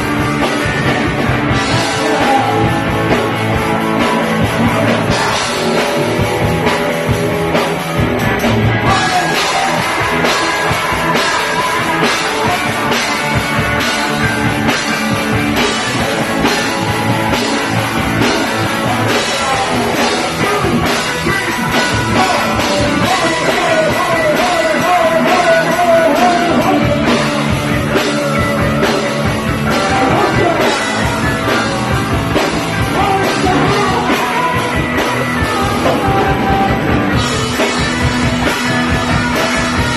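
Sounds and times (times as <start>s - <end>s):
bass: 0.0s - 39.9s
distorted electric guitars: 0.0s - 39.9s
drum kit: 0.0s - 39.9s
shouted singing: 8.8s - 15.0s, 16.0s - 27.4s.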